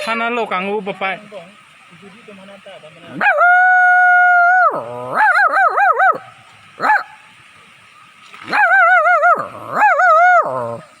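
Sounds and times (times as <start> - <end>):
dog-like howling and whining: 3.2 - 7.0, 8.5 - 10.9.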